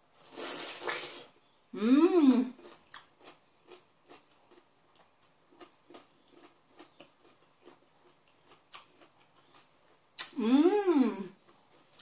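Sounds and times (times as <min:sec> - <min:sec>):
chewing juicy fruit: 0:02.4 - 0:10.4, 0:11.3 - 0:12.0.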